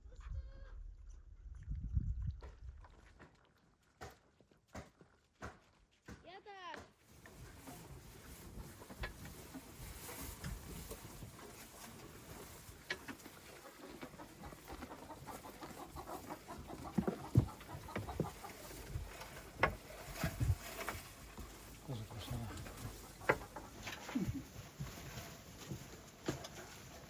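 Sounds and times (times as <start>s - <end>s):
chickens clucking: 7.1s - 27.0s.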